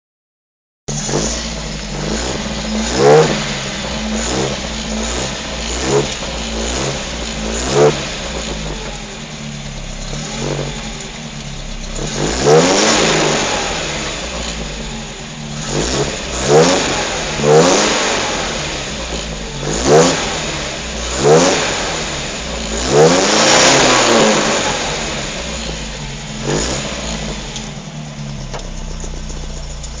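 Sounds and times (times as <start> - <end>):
car engine idling and revving: 0.9 - 30.0.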